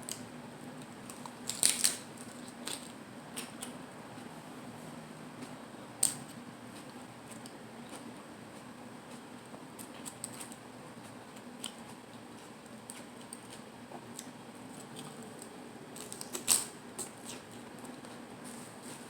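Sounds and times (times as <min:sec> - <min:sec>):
lettuce crunching: 0:00.8 - 0:03.8, 0:14.2 - 0:19.0.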